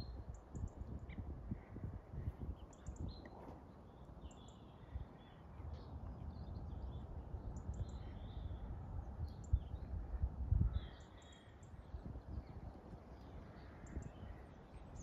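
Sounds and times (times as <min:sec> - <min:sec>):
songbirds chirping and singing: 0:00.0 - 0:15.0
low rumble on microphone: 0:05.6 - 0:15.0.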